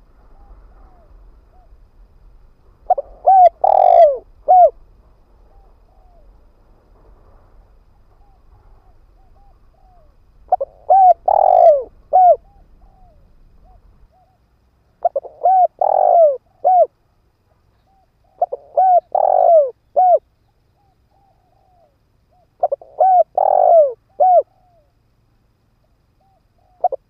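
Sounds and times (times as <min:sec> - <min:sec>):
dove cooing: 0:00.0 - 0:01.9, 0:02.8 - 0:04.8, 0:05.4 - 0:06.4, 0:08.1 - 0:14.4, 0:15.0 - 0:17.0, 0:17.8 - 0:24.9, 0:26.2 - 0:27.0.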